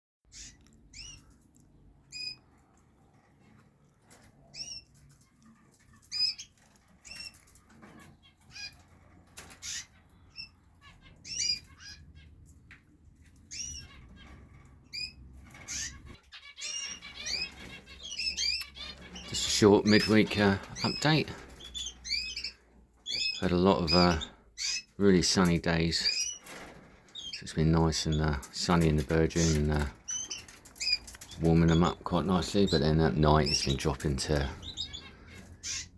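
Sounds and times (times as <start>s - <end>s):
canaries chirping: 0.2s - 35.9s
wings fluttering: 26.1s - 27.4s, 28.3s - 32.0s.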